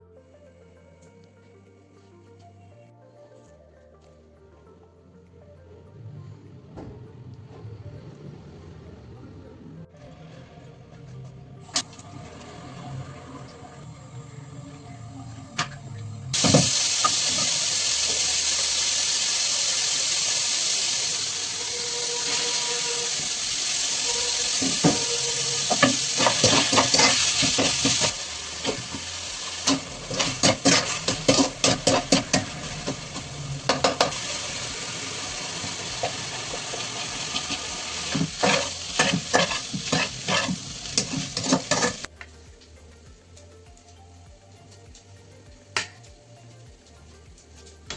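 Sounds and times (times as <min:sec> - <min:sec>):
rice sizzling in hot pan: 0:16.3 - 0:42.2
metal spatula scraping pan: 0:21.6 - 0:34.5, 0:35.7 - 0:42.1.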